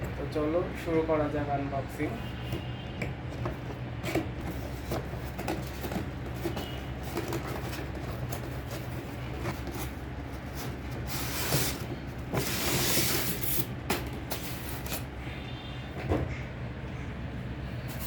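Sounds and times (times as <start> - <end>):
scraping and rustling: 2.2 - 15.1
packaging rustling: 4.4 - 15.1.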